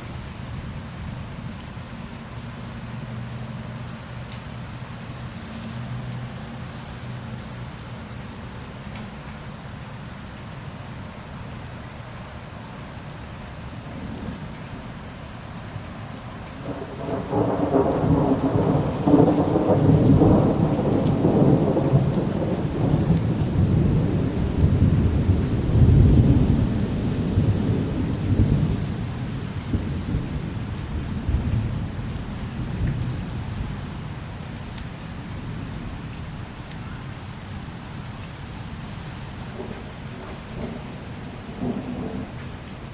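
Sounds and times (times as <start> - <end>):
steady rain: 0.0 - 42.9
rolling thunder rumble: 16.6 - 37.8, 39.2 - 42.9.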